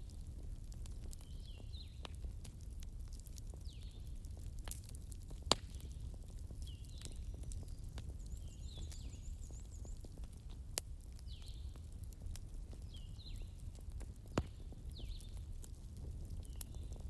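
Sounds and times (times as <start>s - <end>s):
wood fire crackling: 0.0s - 17.0s
sharp fire pops: 4.4s - 8.3s, 13.9s - 17.0s.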